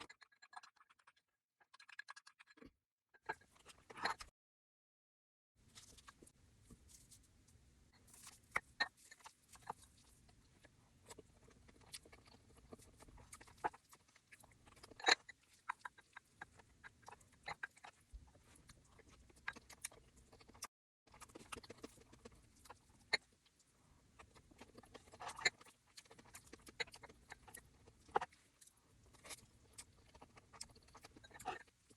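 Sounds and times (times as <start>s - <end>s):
crunchy chewing: 8.0s - 31.9s.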